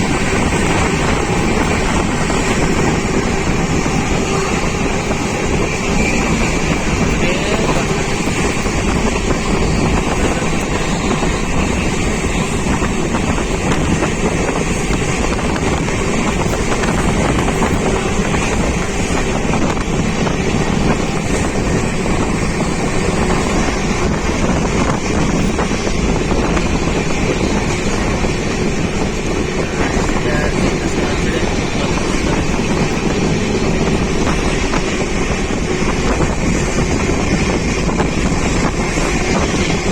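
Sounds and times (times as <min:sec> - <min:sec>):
moving passenger train: 0:00.0 - 0:39.9
wind buffeting microphone: 0:00.0 - 0:39.9.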